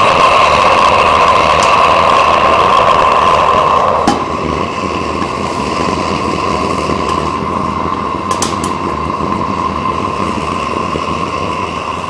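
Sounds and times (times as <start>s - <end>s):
furnace whistling and rushing: 0.0s - 12.0s.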